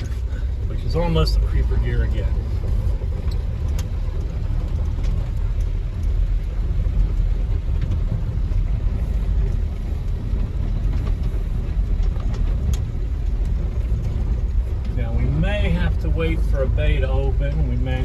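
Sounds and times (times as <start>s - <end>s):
truck engine low rumble: 0.0s - 18.0s.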